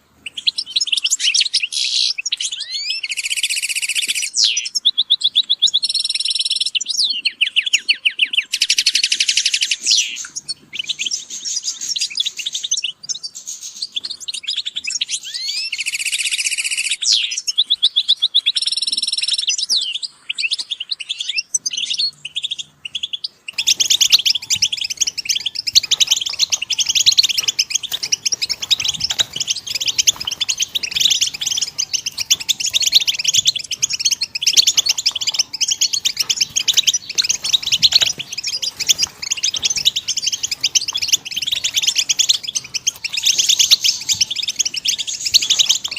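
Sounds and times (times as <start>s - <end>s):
chorus of birds: 0.0s - 45.9s
goldfinches singing: 21.2s - 45.9s.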